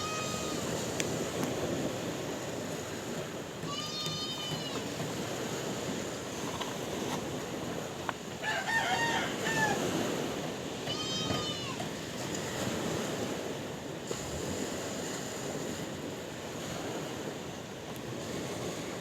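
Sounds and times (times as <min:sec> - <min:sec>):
sea waves washing: 0:00.0 - 0:19.0
farm fowl: 0:08.4 - 0:09.9.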